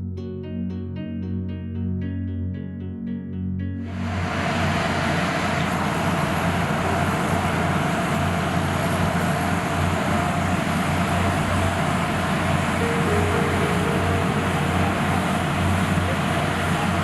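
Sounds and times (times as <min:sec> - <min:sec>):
passenger train rumbling on track: 0:03.9 - 0:17.0.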